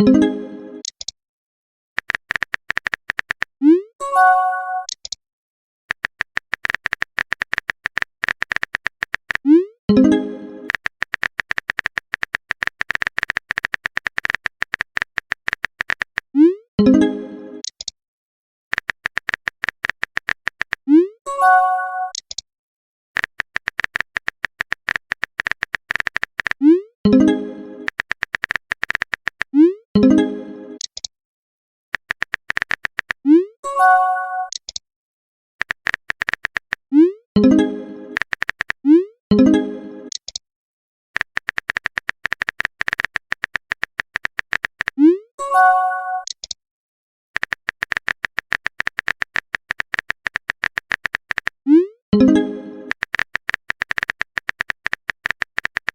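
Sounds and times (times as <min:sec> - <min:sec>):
phone keyboard typing clicks: 0:02.0 - 0:03.6, 0:04.8 - 0:05.2, 0:05.9 - 0:10.1, 0:10.7 - 0:16.3, 0:18.7 - 0:20.9, 0:22.0 - 0:22.4, 0:23.2 - 0:26.7, 0:27.8 - 0:29.6, 0:30.8 - 0:31.1, 0:32.0 - 0:33.3, 0:34.4 - 0:34.8, 0:35.6 - 0:36.9, 0:38.2 - 0:38.9, 0:41.2 - 0:45.0, 0:46.2 - 0:46.6, 0:47.4 - 0:51.6, 0:52.9 - 0:55.9.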